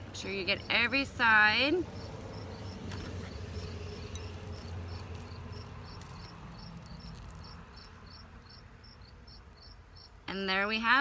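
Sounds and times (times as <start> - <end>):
cricket chirping: 1.8 - 10.2.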